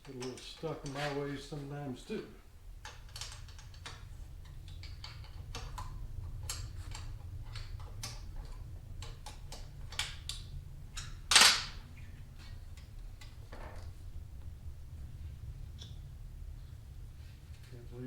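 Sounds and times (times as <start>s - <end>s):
clicks and taps of hand work: 0.0s - 1.2s
steady low hum: 0.0s - 18.0s.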